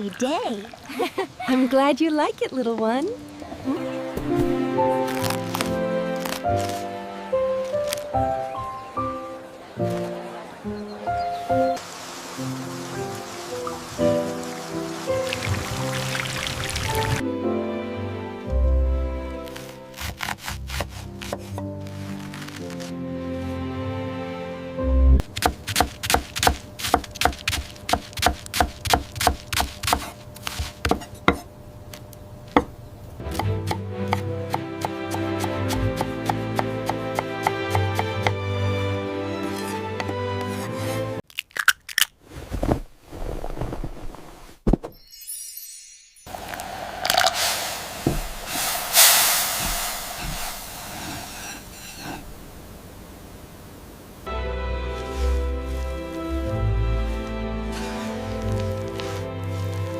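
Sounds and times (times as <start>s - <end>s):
music: 2.7s - 25.3s, 33.2s - 41.2s, 54.3s - 59.9s
food sizzling in a pan: 11.8s - 17.2s, 46.3s - 52.2s
knife chopping on cutting board: 20.0s - 21.7s, 25.4s - 31.5s.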